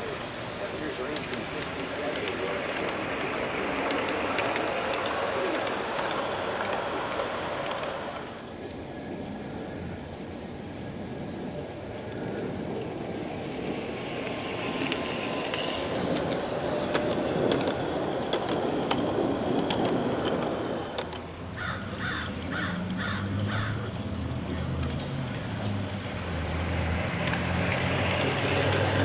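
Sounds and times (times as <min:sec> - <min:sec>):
cricket chirping: 0:00.0 - 0:08.6, 0:20.7 - 0:29.0
model train rumbling: 0:00.0 - 0:29.0
wheels clicking over track: 0:00.0 - 0:29.0
bird calls: 0:21.1 - 0:26.1.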